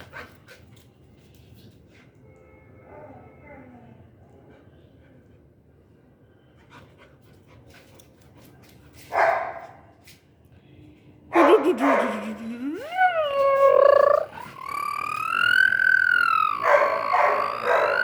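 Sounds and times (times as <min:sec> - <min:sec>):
dog barking: 0:09.1 - 0:09.8, 0:11.3 - 0:12.4, 0:16.6 - 0:18.0
dog howling whine: 0:12.8 - 0:18.0.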